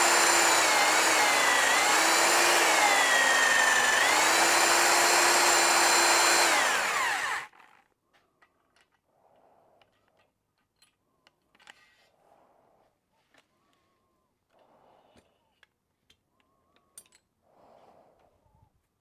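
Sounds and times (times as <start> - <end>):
electric drill motor whining: 0.0 - 7.5.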